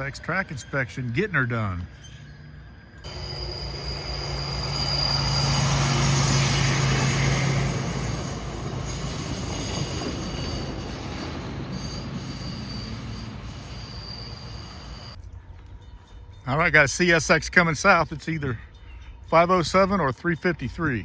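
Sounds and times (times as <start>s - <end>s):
thin high whine: 0.0s - 15.2s
rail truck passing: 0.0s - 21.0s.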